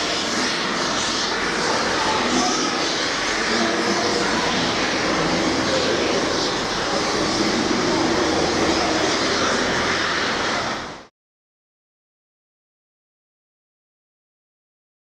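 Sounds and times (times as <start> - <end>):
diesel locomotive engine drone: 0.0 - 11.1.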